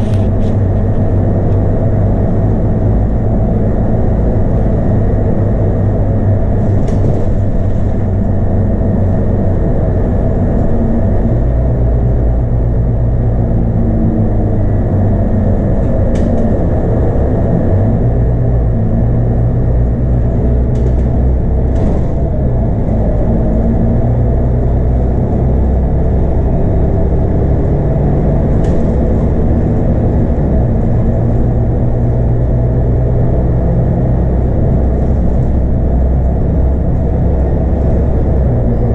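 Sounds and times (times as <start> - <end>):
bus diesel engine drone: 0.0 - 38.9
road noise: 0.0 - 38.9.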